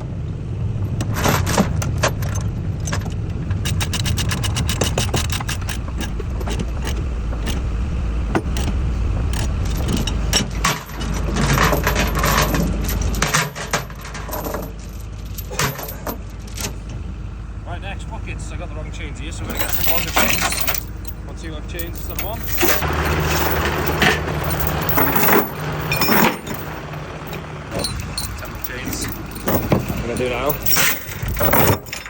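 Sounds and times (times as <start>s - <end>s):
low engine rumble: 0.0s - 32.0s
steel chains rattling and clinking: 3.6s - 7.6s, 8.5s - 16.7s, 19.3s - 32.0s.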